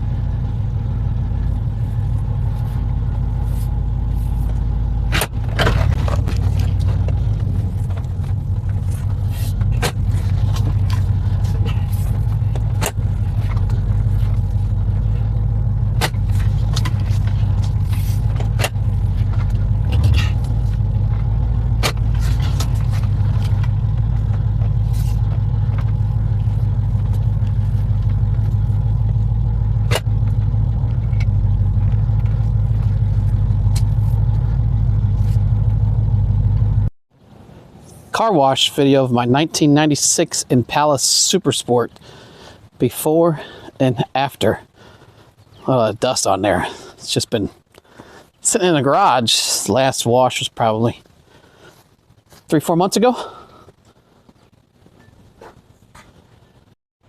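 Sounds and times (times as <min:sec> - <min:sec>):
car engine idling: 0:00.0 - 0:36.9.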